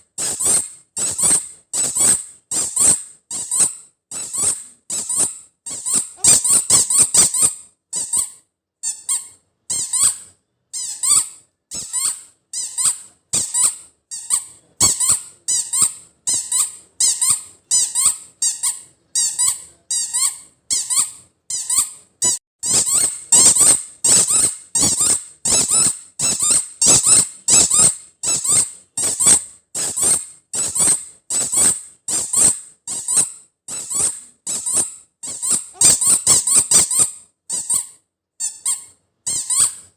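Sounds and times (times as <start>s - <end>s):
squeaky rubber toy squeaks: 0.2s - 39.9s.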